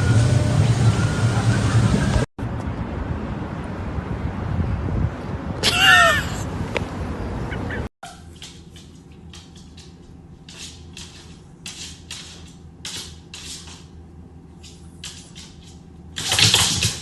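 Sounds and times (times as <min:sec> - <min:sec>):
low steady hum: 0:08.0 - 0:17.0.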